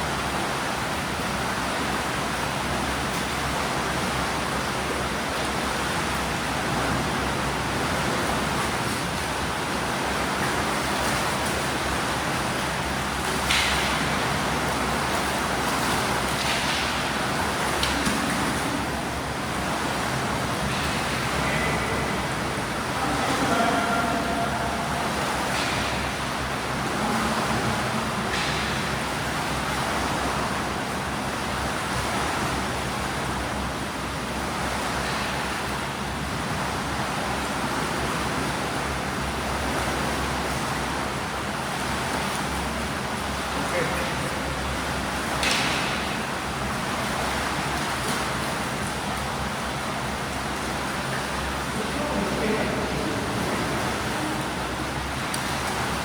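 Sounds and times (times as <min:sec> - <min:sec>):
rushing pool water: 0:00.0 - 0:56.0
swimmers splashing: 0:07.8 - 0:30.6, 0:41.6 - 0:56.0
swimmers splashing in pool: 0:41.6 - 0:56.0.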